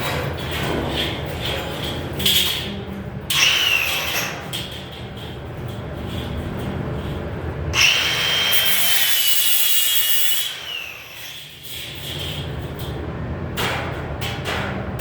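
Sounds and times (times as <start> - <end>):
steady low hum: 0.0 - 9.8, 10.4 - 15.0
power tool whining: 3.3 - 4.4, 7.8 - 11.6.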